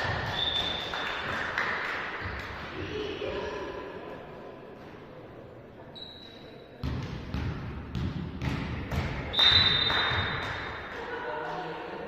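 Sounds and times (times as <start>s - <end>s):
faint whistle: 0.3s - 1.1s, 9.3s - 10.2s
volleyball bouncing on gym floor: 6.8s - 10.9s.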